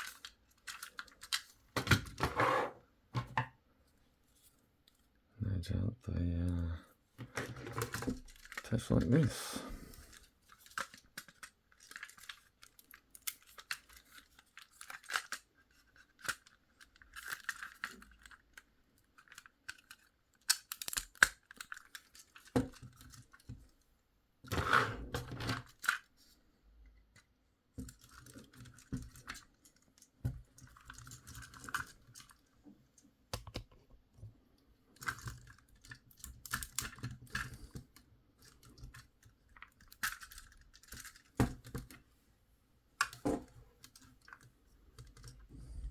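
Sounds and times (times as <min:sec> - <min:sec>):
plastic toy parts clicking: 0:00.0 - 0:01.6, 0:07.7 - 0:09.2, 0:10.1 - 0:23.5, 0:35.0 - 0:42.0.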